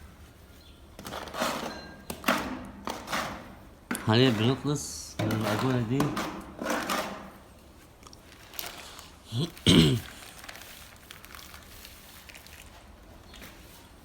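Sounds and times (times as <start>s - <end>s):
putty knife scraping filler: 1.0s - 3.6s, 5.2s - 7.4s
person humming: 9.3s - 10.0s.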